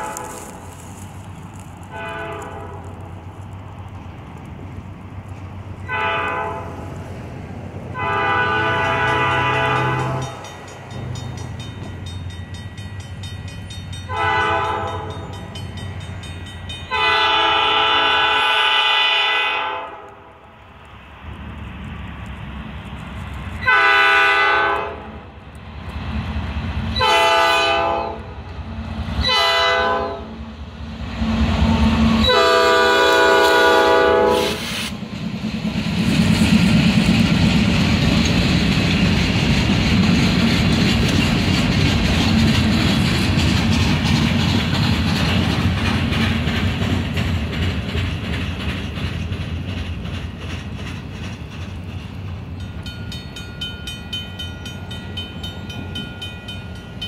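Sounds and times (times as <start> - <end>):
diesel engines rumbling: 0.0 - 13.2, 20.3 - 57.0
wheels clacking on rails: 0.0 - 19.4, 20.8 - 57.0
locomotive horn blasts: 1.9 - 2.9, 5.8 - 6.8, 8.0 - 10.4, 14.1 - 15.3, 16.9 - 20.3, 23.6 - 25.2, 27.0 - 28.3, 29.2 - 30.4, 31.2 - 34.7
crossing signal bell ringing: 8.7 - 17.2, 52.6 - 57.0.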